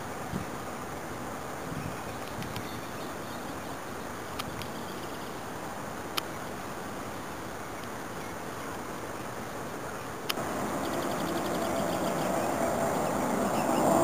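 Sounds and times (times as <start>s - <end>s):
wind on microphone: 0.2s - 0.6s, 1.5s - 2.8s.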